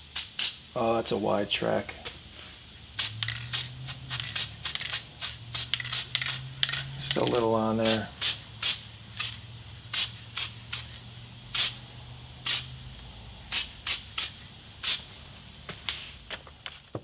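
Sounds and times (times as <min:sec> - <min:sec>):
aerosol can spraying: 0:00.0 - 0:00.6, 0:02.9 - 0:11.8, 0:12.4 - 0:12.8, 0:13.5 - 0:15.1.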